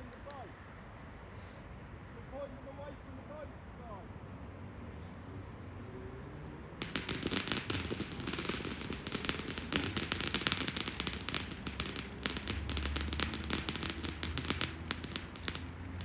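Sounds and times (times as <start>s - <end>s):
fireworks bangs and crackles: 6.8s - 16.0s.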